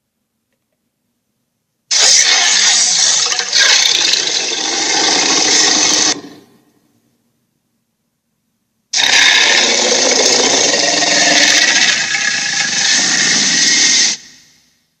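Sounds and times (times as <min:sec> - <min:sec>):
toy harsh rasping noise: 0:01.9 - 0:06.2, 0:09.0 - 0:14.2.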